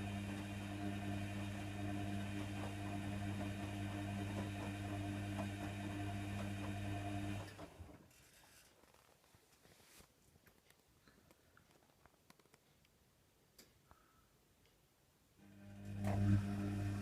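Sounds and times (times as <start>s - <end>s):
washer dryer humming: 0.0s - 8.0s, 15.4s - 17.0s.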